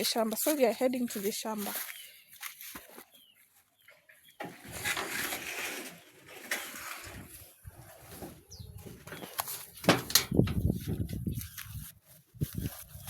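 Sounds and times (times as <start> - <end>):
rustling: 4.4 - 13.0.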